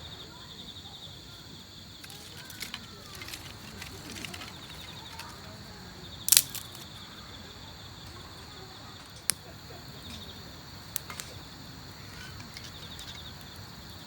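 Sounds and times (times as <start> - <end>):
crickets chirping: 0.0 - 14.0
sharp clicks: 6.3 - 6.8.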